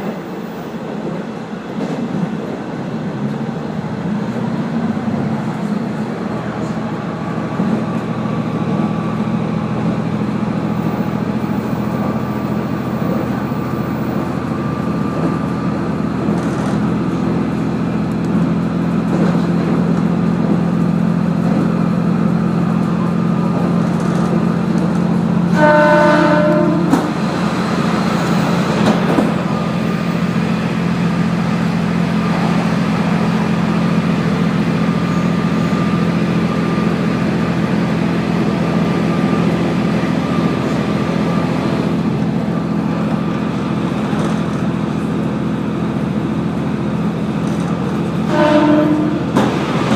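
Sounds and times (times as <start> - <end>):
rail noise: 0.0 - 49.9
railcar engine drone: 0.0 - 49.9
train horn: 25.5 - 27.2, 48.3 - 49.5.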